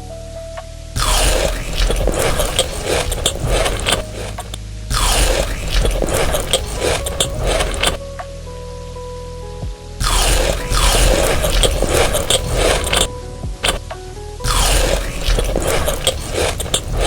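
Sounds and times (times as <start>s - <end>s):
soft background music: 0.0s - 17.0s
crunchy food being chewed: 1.0s - 8.0s, 10.0s - 13.8s, 14.5s - 17.0s.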